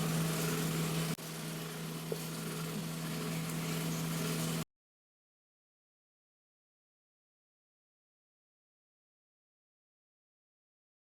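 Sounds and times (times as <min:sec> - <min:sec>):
low machine hum: 0:00.0 - 0:04.6.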